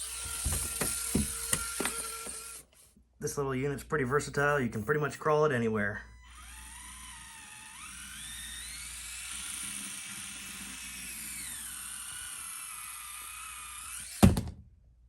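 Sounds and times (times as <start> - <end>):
toy car electric motor whining: 0.0 - 2.9, 6.1 - 14.3.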